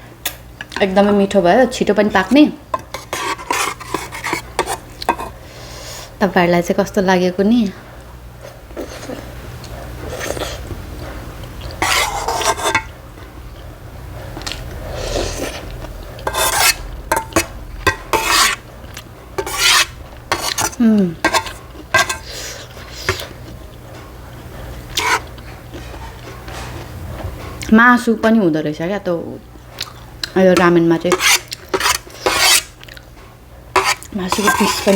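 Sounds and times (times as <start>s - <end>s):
utensils clinking on a dish: 2.8s - 5.3s, 11.8s - 12.9s, 19.4s - 22.4s, 33.8s - 34.9s.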